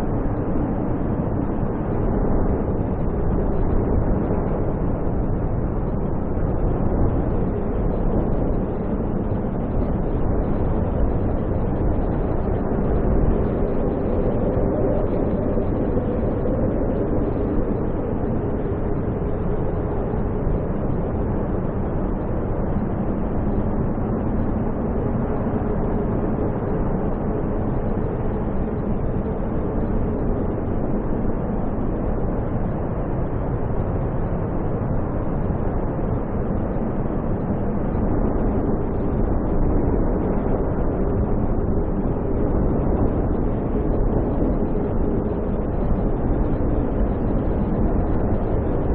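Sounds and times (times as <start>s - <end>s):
faint hum: 0.0s - 48.9s
snowstorm wind roaring: 0.0s - 48.9s.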